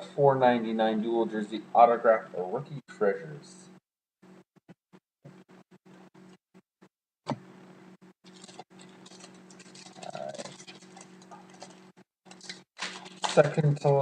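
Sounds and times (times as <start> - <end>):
electrical hum: 0.0 - 4.4, 7.3 - 14.0
cards and wrapper rustling: 8.2 - 14.0.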